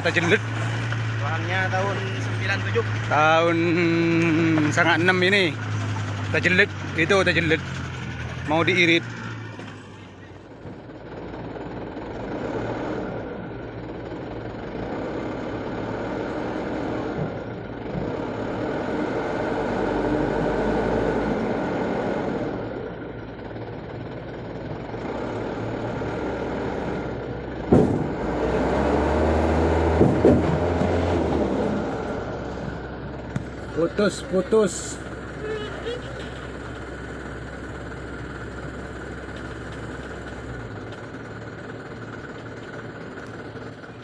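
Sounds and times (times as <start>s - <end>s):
diesel truck engine running: 0.0s - 44.0s
sharp knocks: 27.6s - 28.4s, 29.8s - 31.1s.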